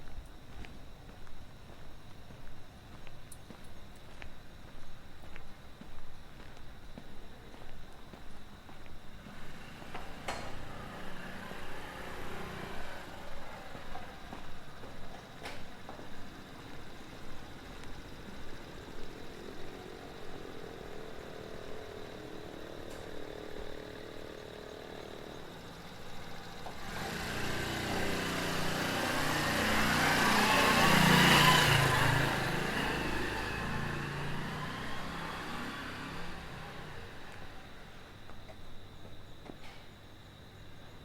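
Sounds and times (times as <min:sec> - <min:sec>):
vehicle passing by: 0:09.2 - 0:15.0, 0:16.4 - 0:37.9.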